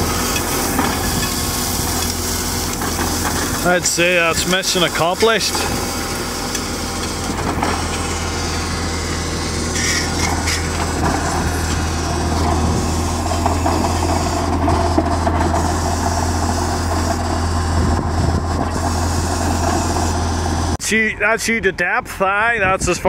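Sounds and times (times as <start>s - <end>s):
drilling rig engines idling: 0.0s - 23.0s.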